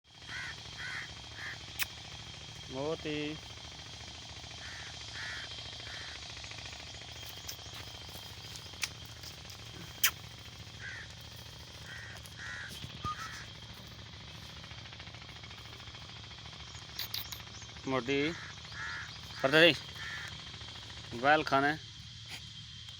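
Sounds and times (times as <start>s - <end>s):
harsh caw-like bird calls: 0.1s - 22.5s
steady outdoor hiss: 0.1s - 22.9s
sharp clicks: 1.7s - 2.2s, 7.3s - 10.5s.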